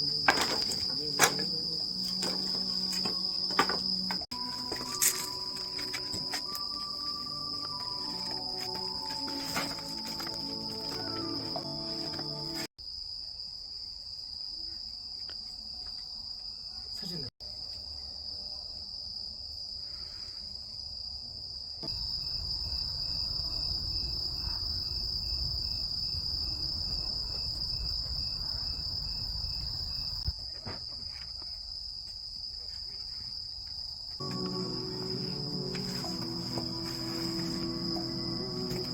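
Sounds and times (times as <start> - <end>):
crickets and insects chorus: 0.0 - 38.9
insect chirping in even pulse: 34.2 - 38.9.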